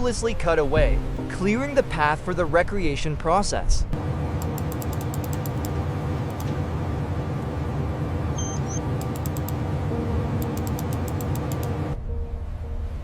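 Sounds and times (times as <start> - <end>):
low mechanical rumble: 3.6 - 13.0
rapid sharp clicking: 4.4 - 6.5, 8.9 - 9.6, 10.4 - 11.8.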